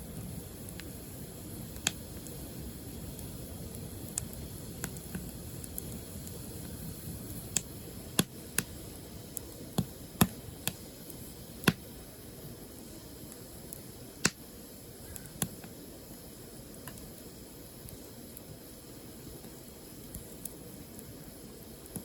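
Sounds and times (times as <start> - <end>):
firewood crackling and popping: 0.0 - 22.0
low steady fire rush: 0.0 - 22.0.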